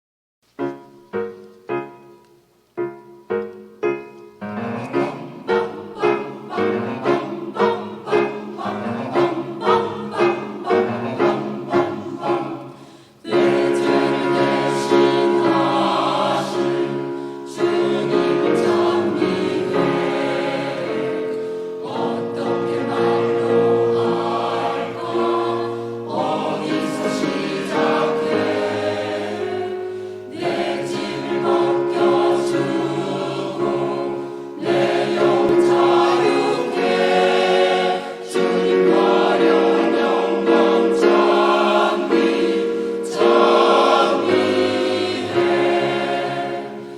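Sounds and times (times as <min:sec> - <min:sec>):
choir singing in harmony: 0:04.4 - 0:46.9
singers breathing: 0:12.7 - 0:13.3, 0:17.0 - 0:17.5, 0:21.3 - 0:21.8, 0:25.7 - 0:26.1, 0:29.8 - 0:30.4, 0:34.2 - 0:34.6, 0:42.7 - 0:43.0.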